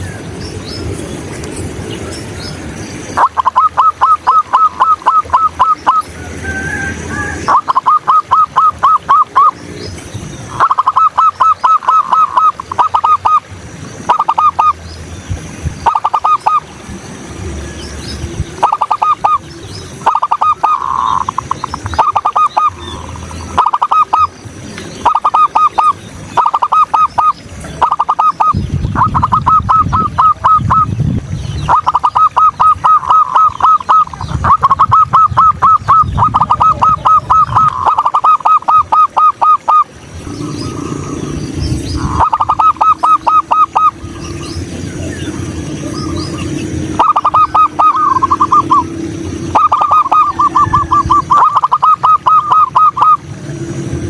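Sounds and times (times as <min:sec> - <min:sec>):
dove cooing: 0:03.2 - 0:09.6, 0:10.5 - 0:14.8, 0:15.8 - 0:16.7, 0:18.6 - 0:24.3, 0:25.0 - 0:31.0, 0:31.6 - 0:54.0
small birds chirping: 0:14.1 - 0:53.2.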